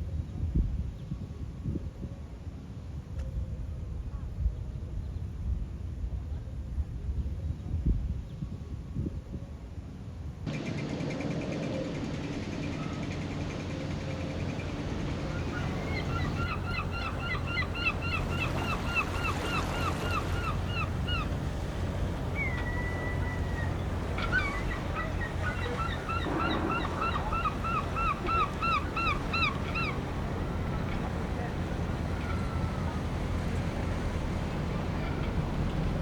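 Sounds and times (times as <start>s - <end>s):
low rumble of surf or wind: 0.0s - 36.0s
falling bird whistle: 15.2s - 33.0s.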